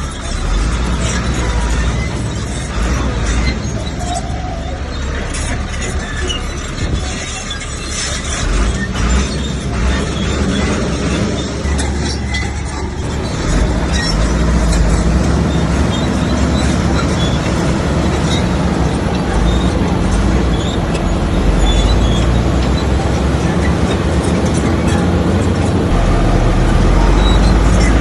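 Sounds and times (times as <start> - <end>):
bulldozer diesel engine running: 0.0 - 28.0.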